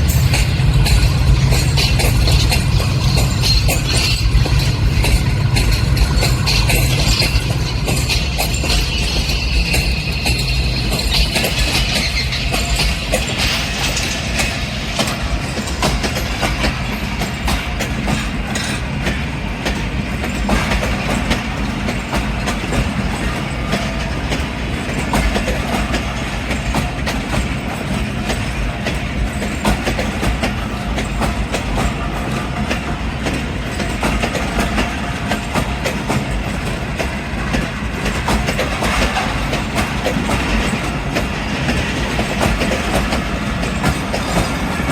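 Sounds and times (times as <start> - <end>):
train rumble: 0.0 - 44.9
train wheels clattering on rails: 0.0 - 44.9.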